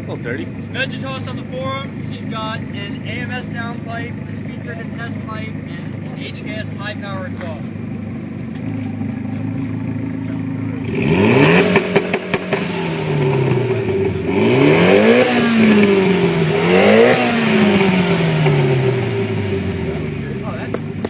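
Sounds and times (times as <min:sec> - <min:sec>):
car engine idling and revving: 0:00.0 - 0:21.0
sharp exhaust pops: 0:10.5 - 0:21.0.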